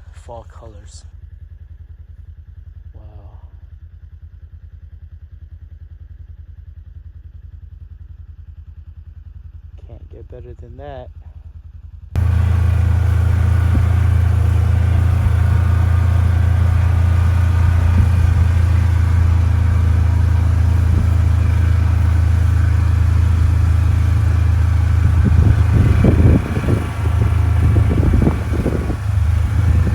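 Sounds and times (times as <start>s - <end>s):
low rumbles and bumps: 12.2s - 29.9s
motor vehicle droning: 12.2s - 29.9s.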